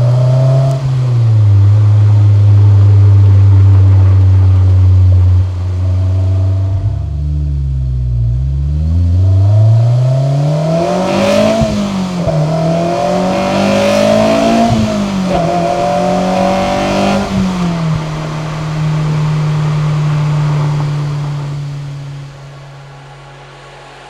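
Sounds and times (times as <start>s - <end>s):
car engine and exhaust accelerating: 0.0s - 24.0s.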